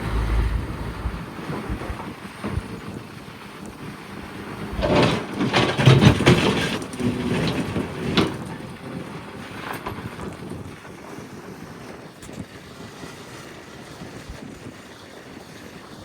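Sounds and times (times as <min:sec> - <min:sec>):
excavator bucket crunching rock: 0:00.0 - 0:10.7
excavator engine hum: 0:00.0 - 0:10.7.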